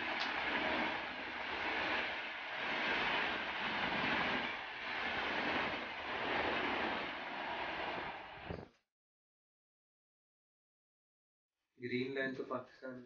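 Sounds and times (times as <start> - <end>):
train rushing past: 0.0 - 8.6.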